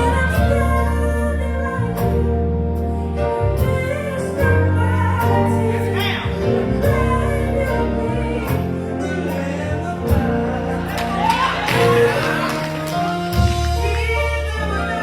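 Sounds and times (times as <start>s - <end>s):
bass guitar: 0.0s - 15.0s
keyboard: 0.0s - 15.0s
choir singing: 5.2s - 15.0s.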